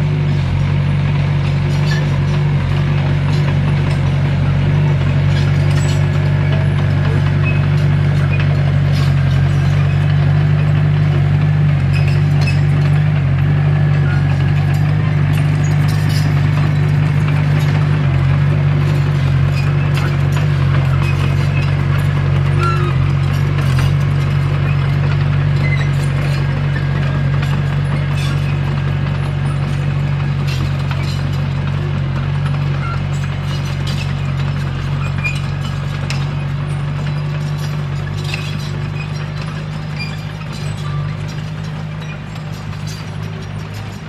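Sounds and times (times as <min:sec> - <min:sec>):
bulldozer diesel engine running: 0:00.0 - 0:44.0
steel tracks clanking: 0:00.3 - 0:44.0.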